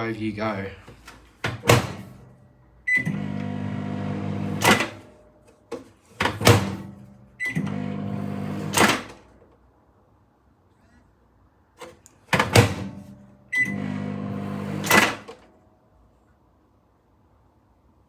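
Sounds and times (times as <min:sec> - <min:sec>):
microwave clunk: 0:01.4 - 0:02.3, 0:04.4 - 0:05.1, 0:06.2 - 0:07.0, 0:12.3 - 0:13.1
microwave oven humming: 0:02.8 - 0:05.2, 0:06.6 - 0:09.1, 0:12.6 - 0:15.3.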